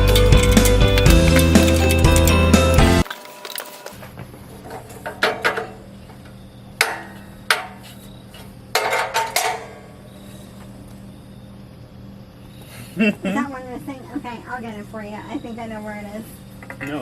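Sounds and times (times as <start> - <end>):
metal grill parts knocking: 0.0 - 3.0, 4.6 - 5.8, 8.7 - 9.9.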